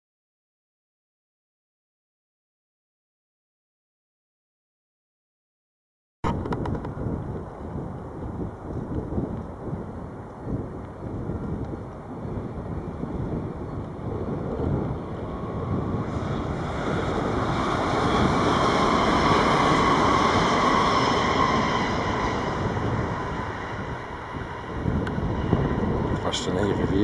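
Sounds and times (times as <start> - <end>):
electric train passing: 6.9 - 27.0.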